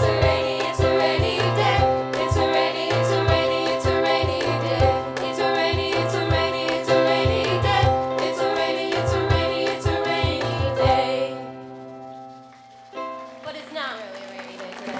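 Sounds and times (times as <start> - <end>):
drum hits: 0.0 - 11.4
sung vocals: 0.0 - 11.6
live band playing: 0.0 - 14.9.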